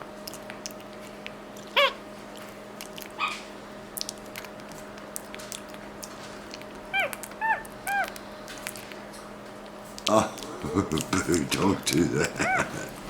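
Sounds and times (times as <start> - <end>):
wet smacking chewing: 0.1 - 13.0
monkey squeaky calls: 1.8 - 2.0, 6.9 - 8.1.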